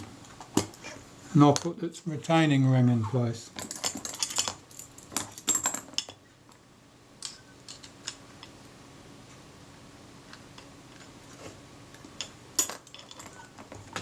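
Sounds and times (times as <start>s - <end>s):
small metal clicks and clinks: 3.6s - 6.2s, 7.2s - 8.5s, 12.2s - 13.8s.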